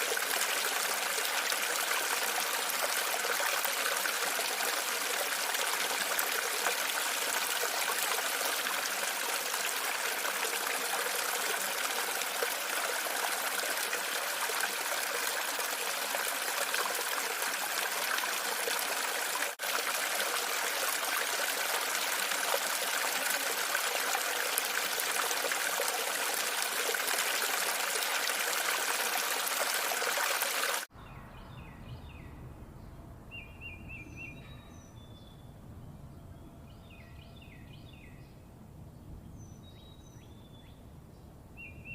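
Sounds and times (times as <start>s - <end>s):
running water splashing: 0.0s - 30.9s.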